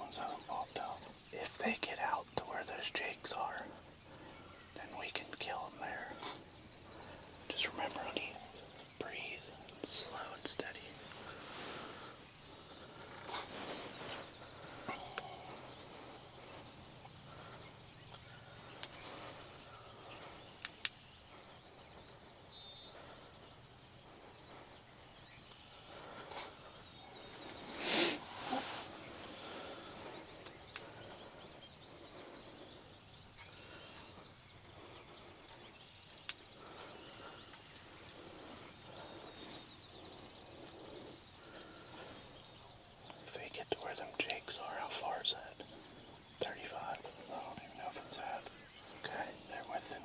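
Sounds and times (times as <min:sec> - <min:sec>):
bird chirps: 0:00.0 - 0:50.0
sharp clicks: 0:20.6 - 0:21.0
rain hiss: 0:27.6 - 0:30.1.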